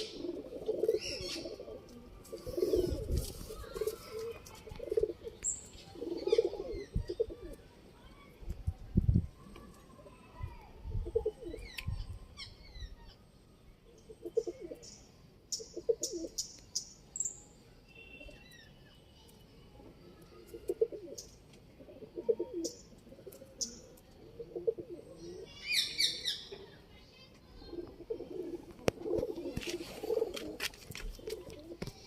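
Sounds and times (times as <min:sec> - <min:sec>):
pigeons cooing: 0:00.0 - 0:07.6, 0:11.0 - 0:11.7, 0:14.1 - 0:14.8, 0:15.6 - 0:16.4, 0:20.5 - 0:26.3, 0:27.7 - 0:30.6.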